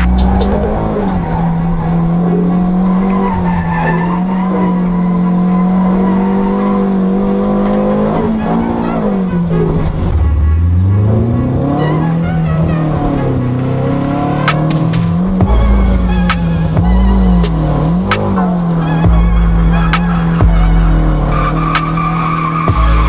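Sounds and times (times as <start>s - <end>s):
car engine at high revs: 0.0s - 23.0s
tyres squealing: 0.0s - 23.0s.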